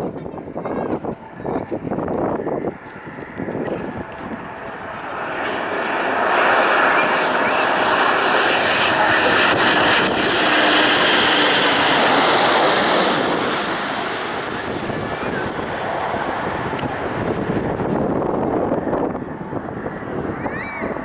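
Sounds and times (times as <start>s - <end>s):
airliner engine roar: 0.2s - 21.0s.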